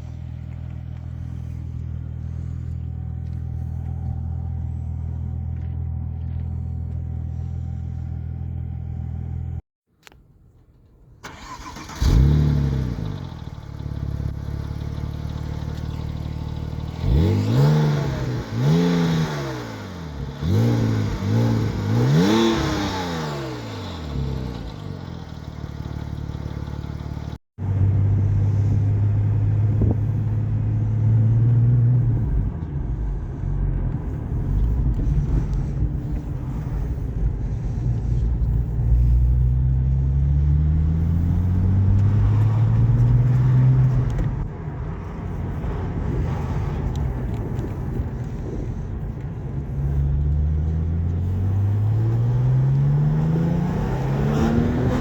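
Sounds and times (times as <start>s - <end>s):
car engine starting and idling: 0.0s - 55.0s
car engine revving: 11.2s - 55.0s.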